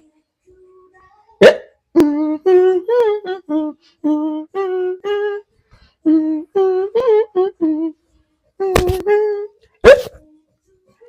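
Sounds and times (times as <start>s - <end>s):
person humming: 1.4s - 8.0s, 8.6s - 10.1s.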